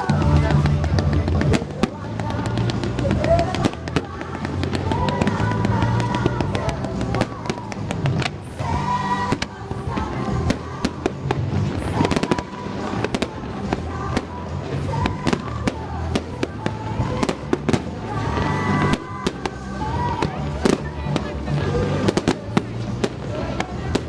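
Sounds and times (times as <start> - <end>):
christmas music playing: 0.0 - 24.0
fireworks bursting and crackling: 0.0 - 24.0.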